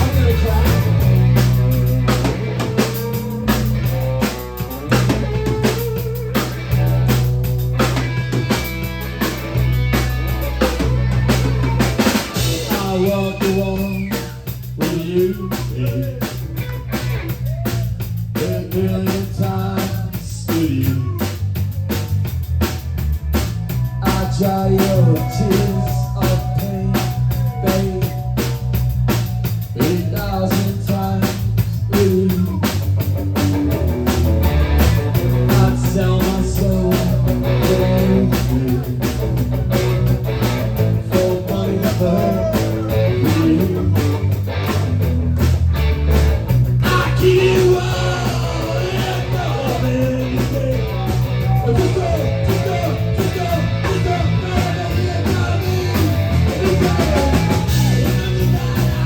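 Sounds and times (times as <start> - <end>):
rock band playing: 0.0 - 59.0
person singing: 10.9 - 21.4, 23.7 - 32.8, 35.3 - 39.2, 40.8 - 44.3, 46.8 - 59.0.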